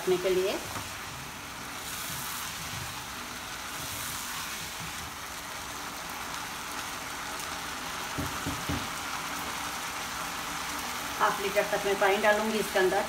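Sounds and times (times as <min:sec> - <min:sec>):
chicken sizzling in pan: 0:00.0 - 0:13.0
knocks: 0:08.2 - 0:08.9.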